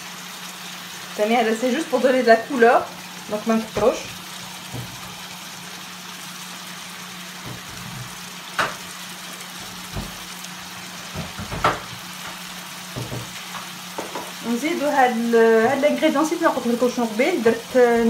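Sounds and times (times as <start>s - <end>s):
food sizzling in a frying pan: 0.0s - 18.0s
utensil tapping a pan: 11.1s - 14.4s.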